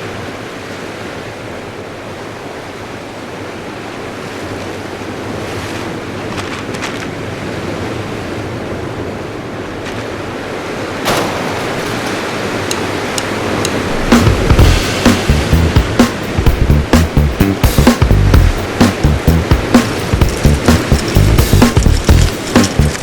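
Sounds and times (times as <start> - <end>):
ocean surf: 7.2 - 17.0, 17.6 - 23.0.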